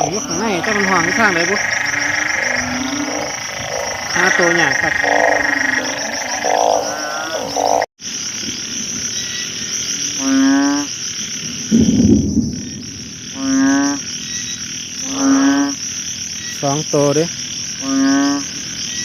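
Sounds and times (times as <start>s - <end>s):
bullfrog deep calls: 0.0s - 7.9s, 10.0s - 10.9s, 11.7s - 16.7s, 17.7s - 19.0s
small frogs calling: 0.0s - 11.8s, 12.5s - 19.0s
insect chorus: 0.0s - 19.0s.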